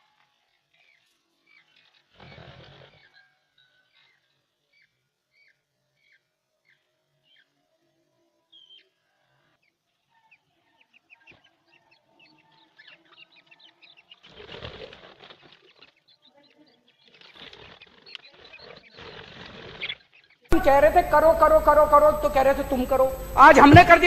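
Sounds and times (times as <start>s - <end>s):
wings fluttering: 14.1s - 16.2s, 17.0s - 20.4s.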